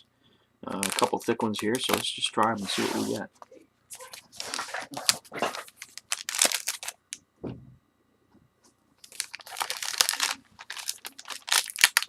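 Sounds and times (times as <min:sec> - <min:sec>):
foil wrapper tearing and crinkling: 0:00.8 - 0:01.3, 0:04.0 - 0:07.0, 0:09.0 - 0:12.0.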